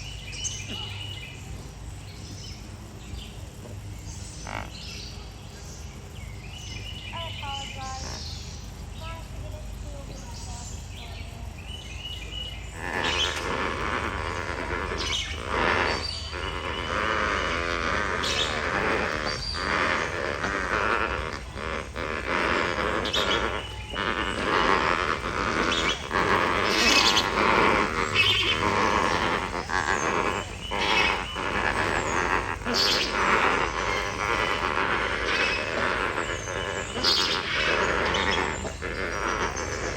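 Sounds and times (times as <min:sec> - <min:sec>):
flock of flamingos calling: 0:00.0 - 0:39.9.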